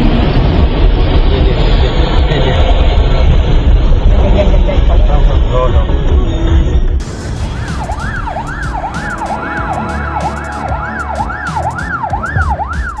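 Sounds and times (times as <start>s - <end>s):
low rumble: 0.0s - 13.0s
emergency siren yelping: 7.0s - 13.0s.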